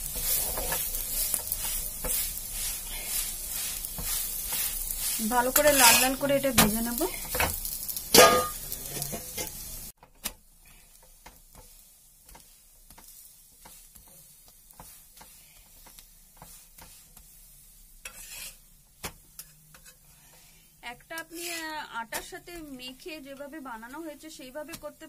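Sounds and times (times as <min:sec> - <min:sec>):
flatbread sizzling in oil: 0:00.0 - 0:25.0
spatula scraping a pan: 0:00.0 - 0:25.0.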